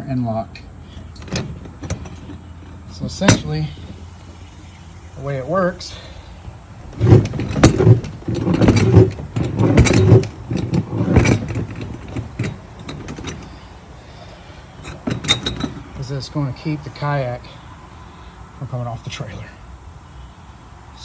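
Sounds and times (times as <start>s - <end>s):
metal lock clanking and rattling: 0.8s - 17.2s.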